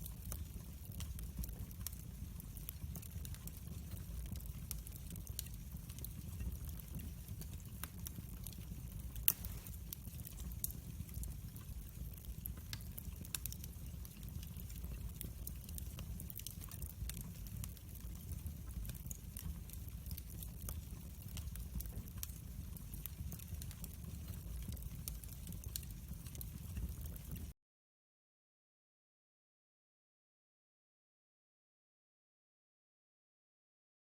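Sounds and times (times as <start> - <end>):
campfire crackling: 0.0 - 27.5
sharp fire pops: 9.2 - 11.3.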